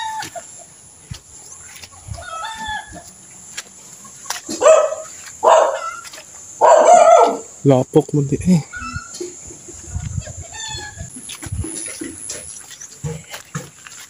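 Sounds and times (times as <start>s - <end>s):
rooster crowing: 0.0s - 0.4s, 2.1s - 3.1s, 4.5s - 7.5s.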